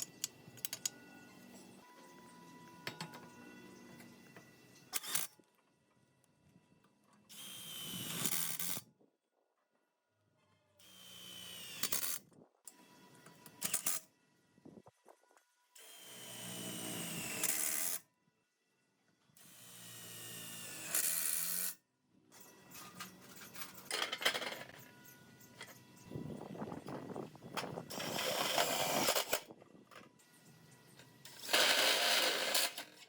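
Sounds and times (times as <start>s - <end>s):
rattling clicking tool noises: 0.0s - 1.0s, 22.7s - 25.8s, 26.8s - 30.1s, 31.0s - 33.0s
electric power tool motor: 27.9s - 29.5s, 31.3s - 32.9s.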